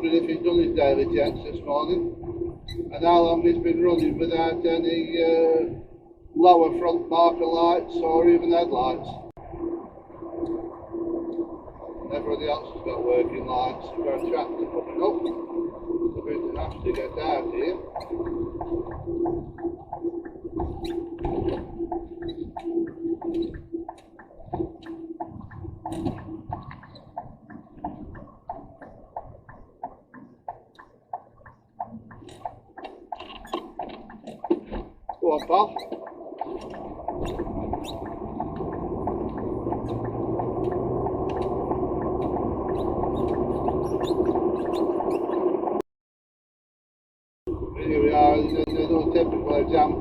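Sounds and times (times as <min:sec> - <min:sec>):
low rumble: 0:00.0 - 0:29.5, 0:36.6 - 0:45.8
sharp clicks and rattles: 0:16.3 - 0:45.4
steady cab hum: 0:36.4 - 0:45.8
lorry engine: 0:37.0 - 0:45.0.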